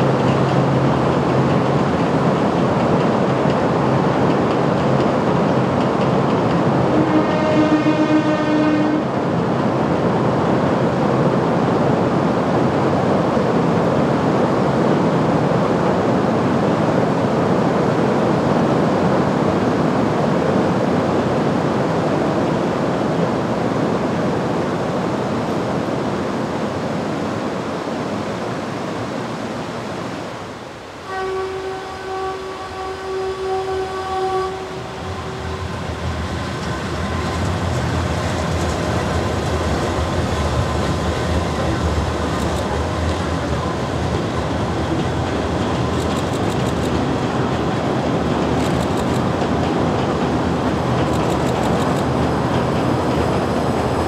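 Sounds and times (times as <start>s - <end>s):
train rumbling over a bridge: 0.0s - 54.0s
train horn: 6.9s - 9.2s, 31.0s - 35.7s.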